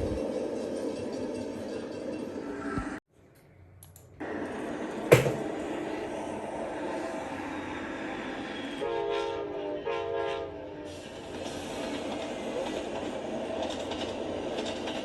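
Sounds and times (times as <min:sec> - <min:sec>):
diesel train rumbling: 0:00.0 - 0:03.0, 0:04.2 - 0:15.0
sharp knock: 0:05.1 - 0:05.5
train air horn blasts: 0:08.8 - 0:11.0.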